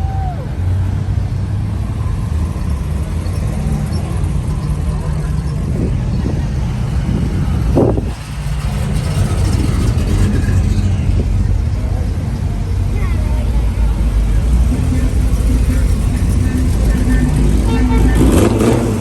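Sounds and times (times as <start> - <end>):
car engine idling: 0.4 - 19.0
people talking: 10.2 - 19.0.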